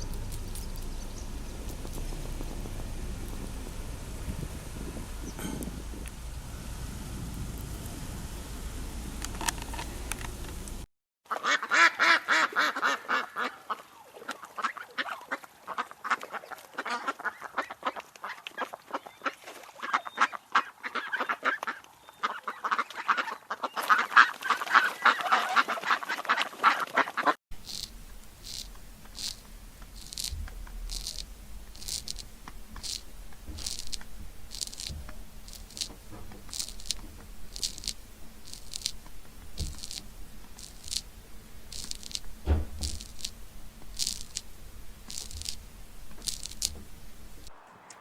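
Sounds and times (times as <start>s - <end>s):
flock of birds calling: 0.0s - 10.8s, 11.7s - 32.1s
sharp clicks or crunches: 27.6s - 41.1s, 41.7s - 48.0s.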